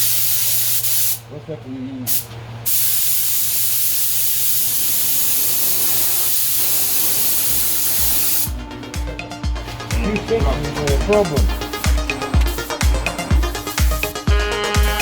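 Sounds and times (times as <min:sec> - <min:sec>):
paint spray gun hissing: 0:00.0 - 0:01.2, 0:02.1 - 0:08.5, 0:11.3 - 0:15.0
steady low hum: 0:03.8 - 0:15.0
music with a beat: 0:07.5 - 0:15.0.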